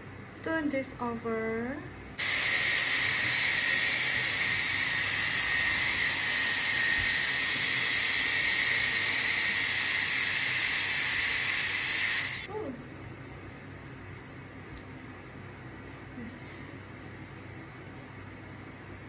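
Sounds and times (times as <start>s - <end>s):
hair dryer blowing: 2.2s - 12.5s.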